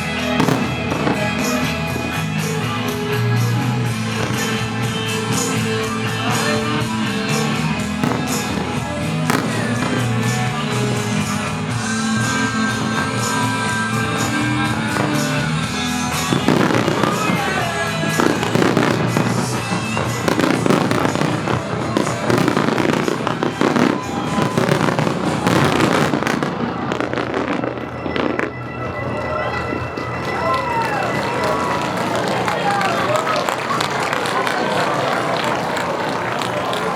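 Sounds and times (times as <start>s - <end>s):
firework whistles: 0.0s - 35.0s
firework bursts and crackles: 0.0s - 36.9s
music: 0.0s - 36.9s.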